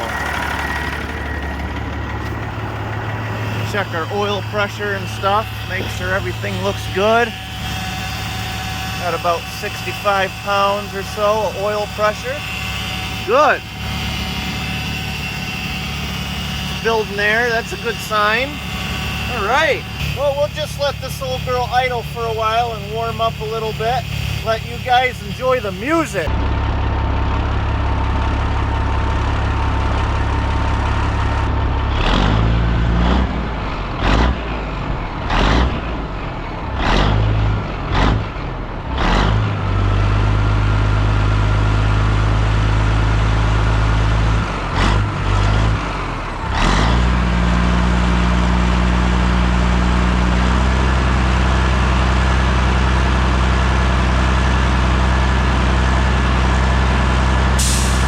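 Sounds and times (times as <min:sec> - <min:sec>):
diesel engine revving and idling: 0:00.0 - 0:58.0
brief hiss: 0:57.6 - 0:58.0.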